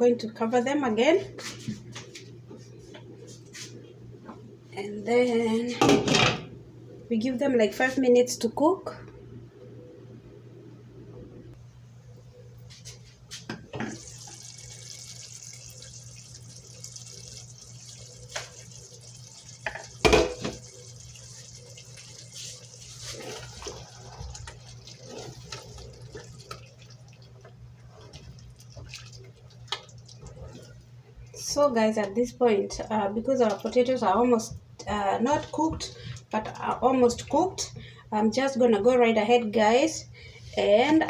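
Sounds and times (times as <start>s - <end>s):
water running from a tap: 13.8s - 30.7s.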